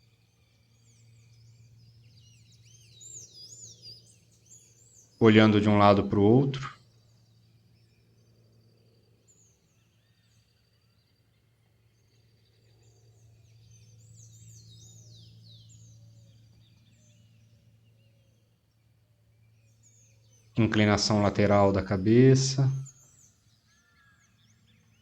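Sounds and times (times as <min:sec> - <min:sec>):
birds chirping: 0:00.0 - 0:25.0
steady low hum: 0:18.7 - 0:22.9.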